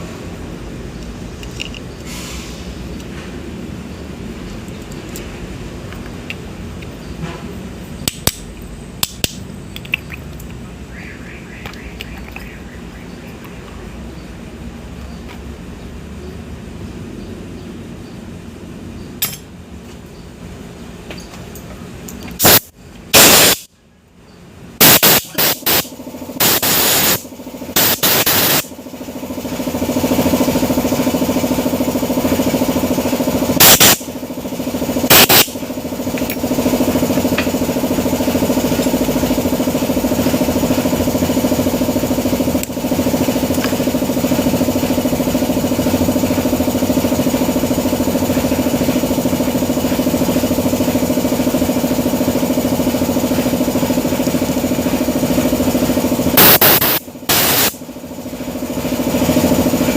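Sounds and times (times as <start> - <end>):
brush cutter engine running: 24.9 - 59.9.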